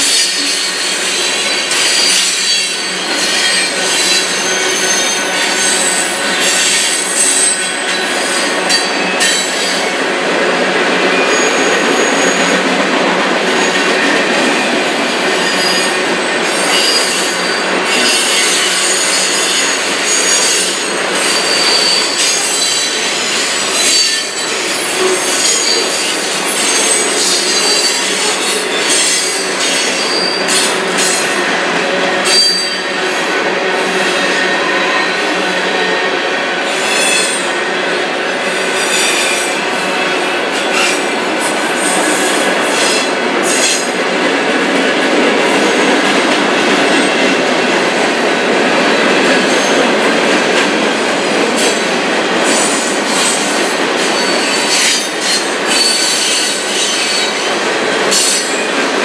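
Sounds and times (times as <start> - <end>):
high wheel squeal: 0.0 - 10.0, 10.9 - 12.7, 13.5 - 31.3, 32.2 - 33.0, 54.0 - 58.7
train wheels rumbling on rail: 0.0 - 59.0.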